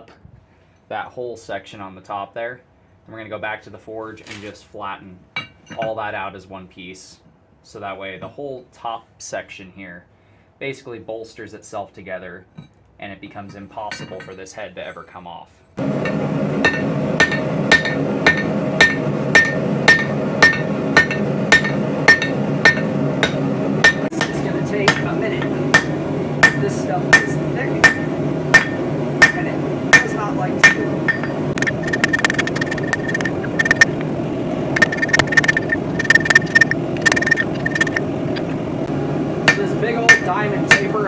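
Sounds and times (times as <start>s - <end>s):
hammer striking steel on anvil: 15.8s - 33.9s, 34.8s - 38.0s, 39.4s - 41.0s
steady drone: 15.8s - 41.0s.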